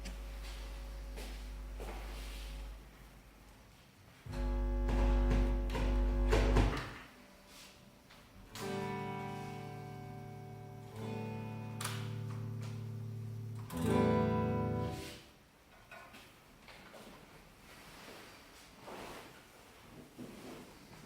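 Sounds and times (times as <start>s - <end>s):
acoustic guitar chords ringing: 4.3s - 7.5s, 8.4s - 15.2s.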